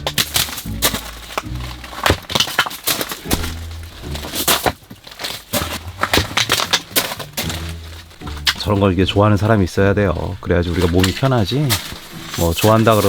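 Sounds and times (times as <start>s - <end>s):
firewood being chopped: 0.0s - 9.5s.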